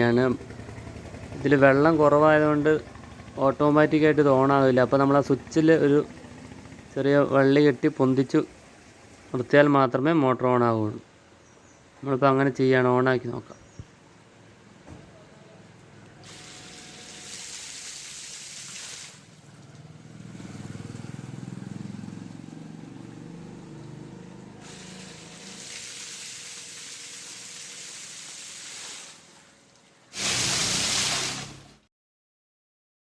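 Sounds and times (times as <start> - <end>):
water rushing from a pump: 3.5 - 9.5, 16.2 - 21.7, 24.6 - 31.9.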